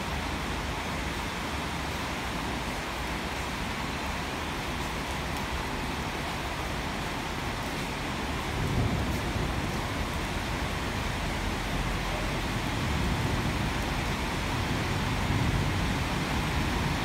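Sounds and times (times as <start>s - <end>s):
rain hissing on roof: 0.0s - 17.0s.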